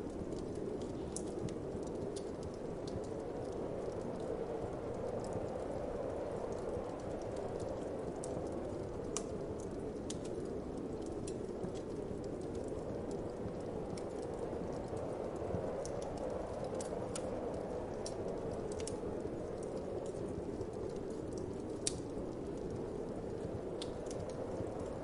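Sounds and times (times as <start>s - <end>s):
wood fire crackling and popping: 0.0s - 25.0s.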